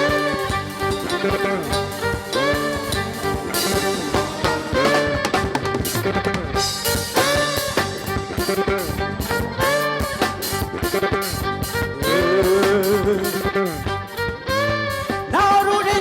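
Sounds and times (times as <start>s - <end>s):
drum kit beat: 0.0s - 16.0s
melodic lead line: 0.0s - 16.0s.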